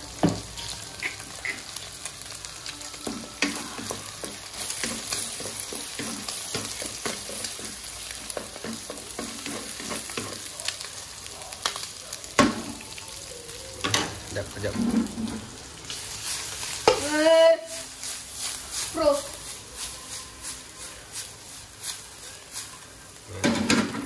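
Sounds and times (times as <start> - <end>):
egg frying and sizzling: 0.0 - 24.0
wooden spatula scraping pan: 14.6 - 15.6.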